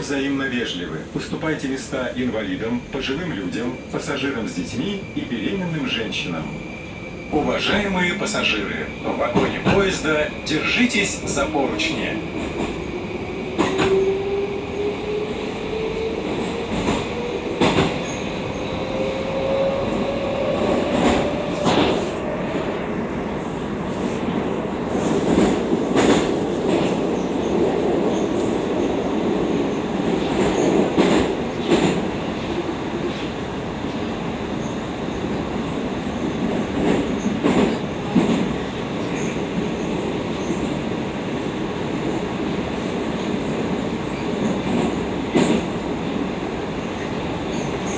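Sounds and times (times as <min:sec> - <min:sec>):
train running noise in tunnel: 0:00.0 - 0:47.9.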